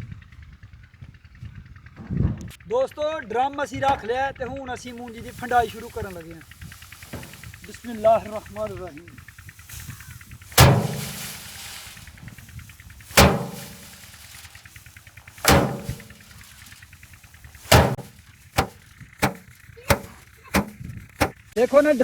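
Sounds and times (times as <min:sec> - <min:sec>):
rice stalks beaten against a drum: 0:05.1 - 0:21.4.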